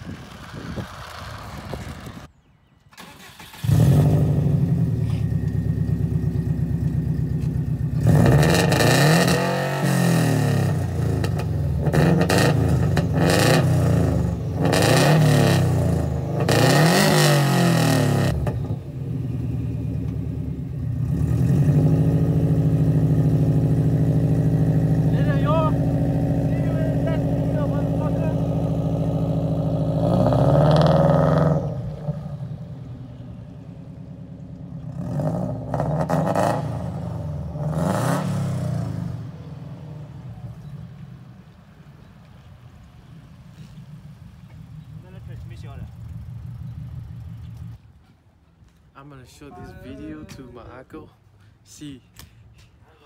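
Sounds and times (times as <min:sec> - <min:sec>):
car engine revving: 0:03.0 - 0:41.8.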